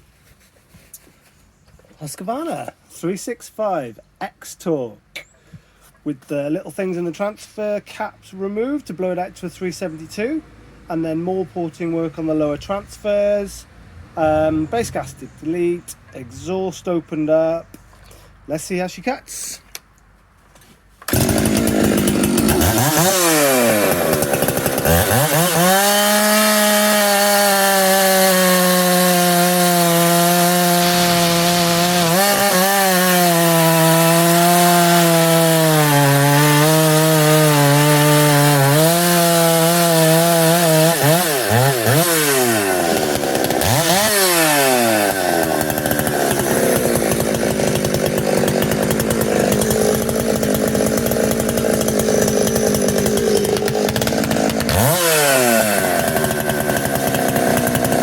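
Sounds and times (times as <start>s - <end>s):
chainsaw cutting wood: 21.0s - 58.0s.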